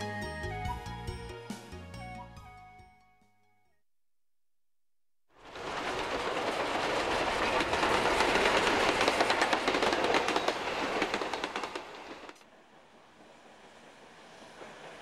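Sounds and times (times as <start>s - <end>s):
train wheels clicking over rail joints: 5.5s - 12.5s.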